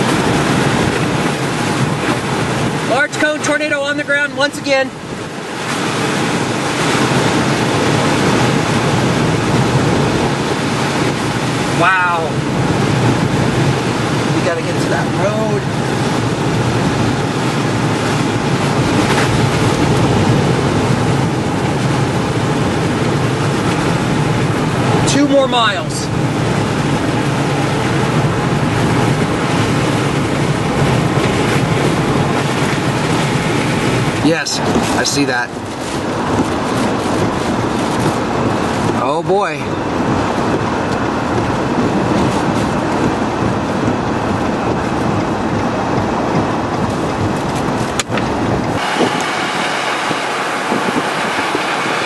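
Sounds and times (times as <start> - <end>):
strong wind on microphone: 0.0 - 52.0.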